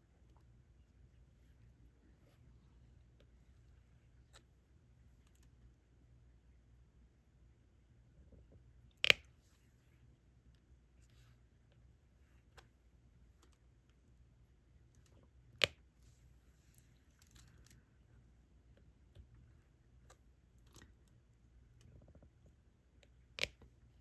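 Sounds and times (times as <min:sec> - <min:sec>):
faint steady hum: 0:00.0 - 0:24.0
small clicks and taps of pen: 0:09.0 - 0:09.3, 0:14.9 - 0:15.8, 0:23.0 - 0:23.7.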